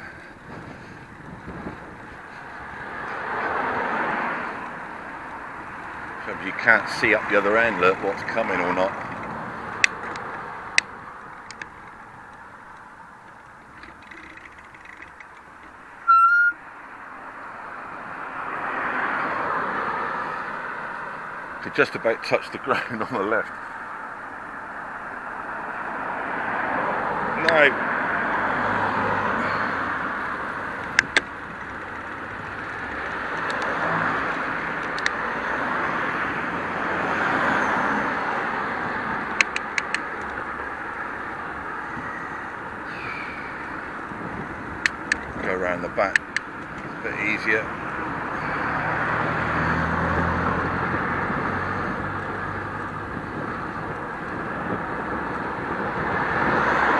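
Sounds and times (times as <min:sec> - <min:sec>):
road traffic passing: 0:00.0 - 0:56.9
vehicle passing close: 0:00.0 - 0:56.9
sharp clicks: 0:08.9 - 0:15.8, 0:30.8 - 0:33.8, 0:34.8 - 0:35.2, 0:39.4 - 0:40.4, 0:44.8 - 0:45.4, 0:46.0 - 0:46.9
car horn beep: 0:16.0 - 0:16.6.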